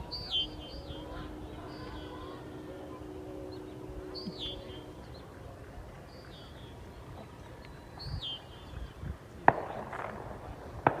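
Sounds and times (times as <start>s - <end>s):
bird calling: 0.0s - 5.4s
low outdoor rumble: 0.0s - 6.1s
faint low hum: 0.0s - 8.0s.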